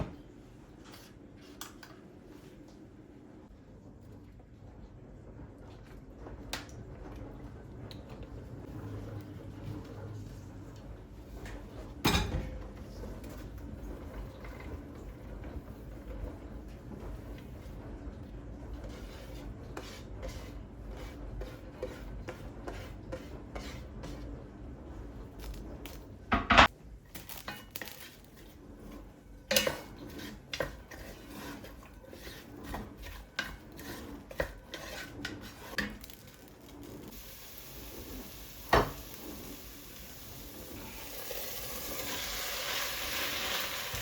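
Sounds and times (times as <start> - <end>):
kitchen utensils and dishes clinking: 12.0 - 12.6.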